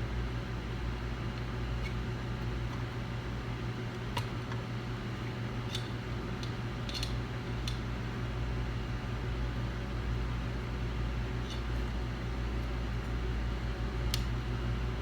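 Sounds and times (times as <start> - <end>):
electrical hum: 0.0 - 15.0
fan noise: 0.0 - 15.0.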